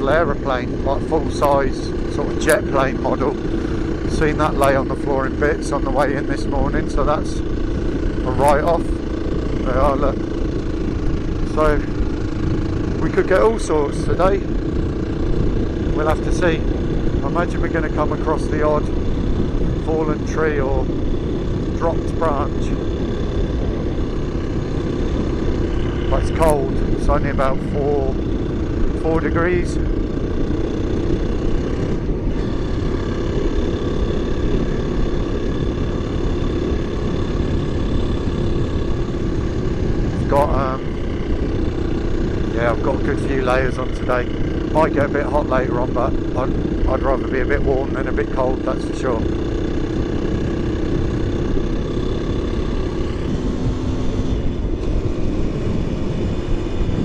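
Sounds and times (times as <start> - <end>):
motorbike engine running: 0.0 - 57.0.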